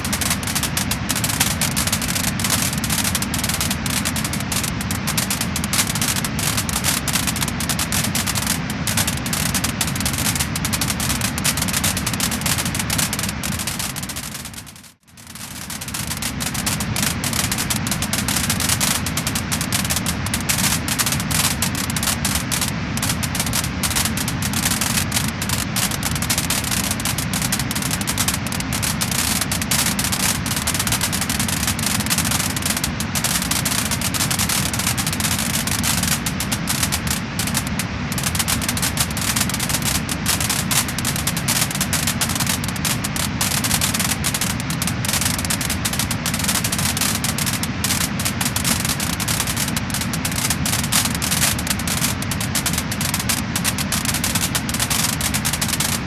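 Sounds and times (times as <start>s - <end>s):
low rushing hiss: 0.0s - 30.4s, 34.3s - 46.1s
wood fire crackling and popping: 0.0s - 56.0s.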